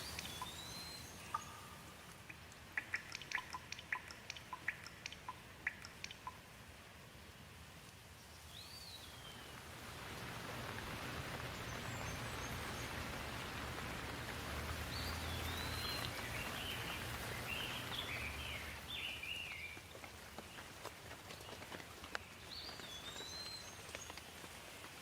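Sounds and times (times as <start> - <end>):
bird whistling and chirping: 0.0 - 1.8
steady rain: 0.0 - 25.0.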